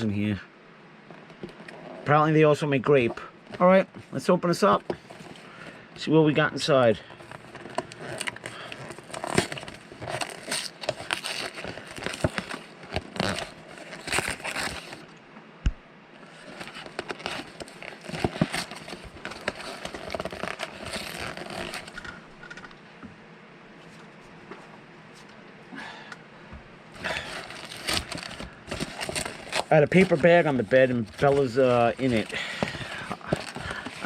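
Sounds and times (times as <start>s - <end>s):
paper packaging crinkling and tearing: 6.8s - 15.1s, 16.2s - 22.6s, 27.0s - 34.0s.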